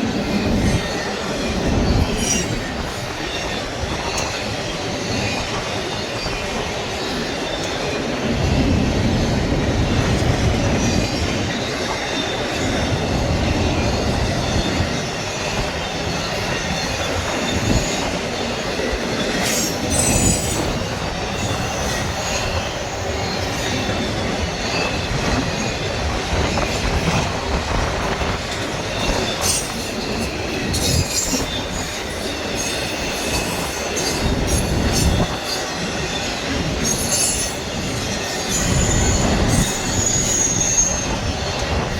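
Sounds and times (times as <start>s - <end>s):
freight train rolling past: 0.0s - 41.9s
train wheel squeals: 0.0s - 41.9s.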